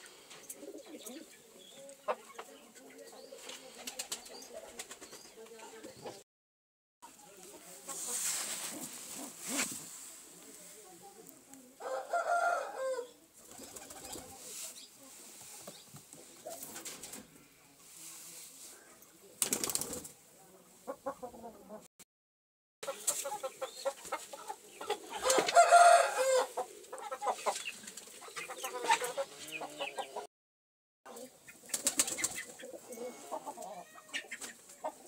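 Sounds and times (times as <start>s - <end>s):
domestic birds clucking: 0.3s - 6.2s, 20.8s - 21.9s, 22.8s - 30.3s, 31.1s - 35.0s
rustling: 7.4s - 11.6s.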